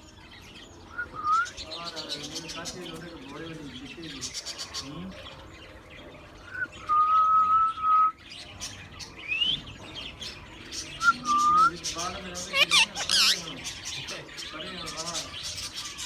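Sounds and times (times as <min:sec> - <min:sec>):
parakeet whistling: 0:12.5 - 0:13.4
bird chirps: 0:12.5 - 0:13.5.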